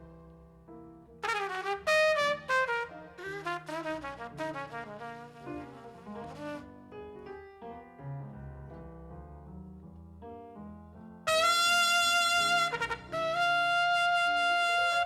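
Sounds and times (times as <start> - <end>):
soft piano notes: 0.0 - 15.0
trumpet long held notes: 1.2 - 6.6, 11.3 - 15.0.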